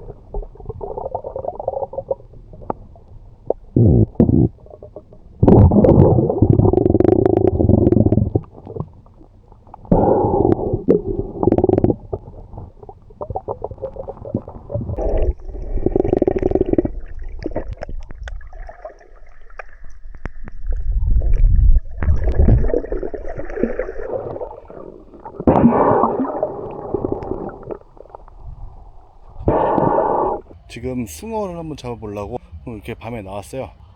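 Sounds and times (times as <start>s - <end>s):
muffled underwater gurgling: 0.0s - 33.6s.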